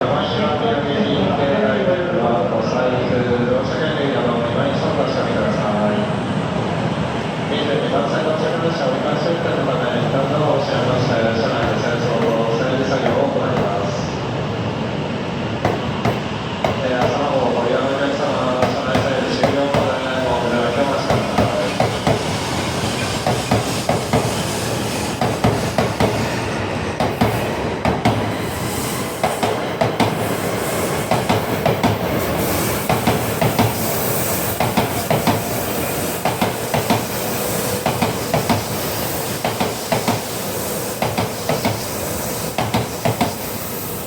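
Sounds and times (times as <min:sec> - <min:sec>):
hiss from moving train: 0:04.8 - 0:44.0
train wheels clicking over rail joints: 0:11.2 - 0:13.9, 0:15.6 - 0:17.4, 0:18.4 - 0:28.4, 0:29.0 - 0:33.8, 0:34.4 - 0:40.4, 0:41.0 - 0:41.9, 0:42.5 - 0:43.6.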